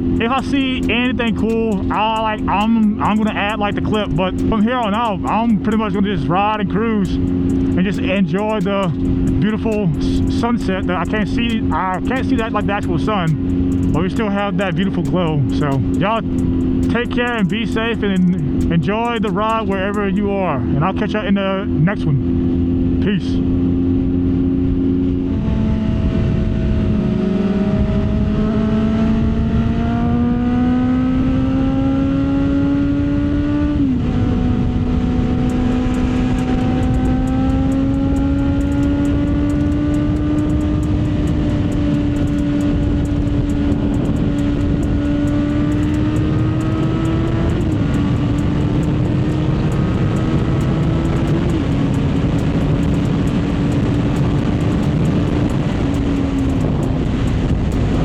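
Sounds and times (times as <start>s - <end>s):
motorcycle engine shifting gears: 0.0s - 21.0s, 22.2s - 58.0s
wind rush on microphone: 24.0s - 58.0s.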